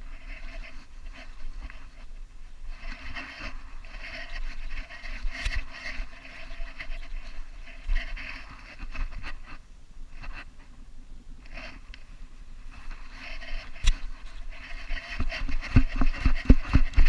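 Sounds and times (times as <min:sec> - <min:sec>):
camera mount scraping against dog: 0:13.3 - 0:17.0.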